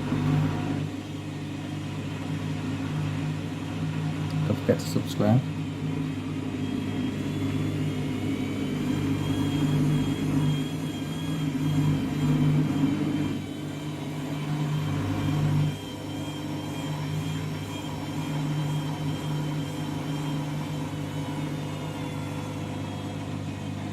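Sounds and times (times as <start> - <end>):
washing machine drum motor humming: 0.0 - 23.9.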